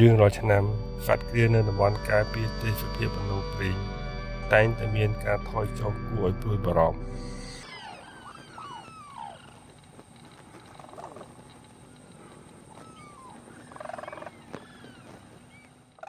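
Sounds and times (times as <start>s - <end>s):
birds whistling calls: 7.6s - 9.8s, 12.7s - 15.8s
bird chatter: 7.6s - 16.0s.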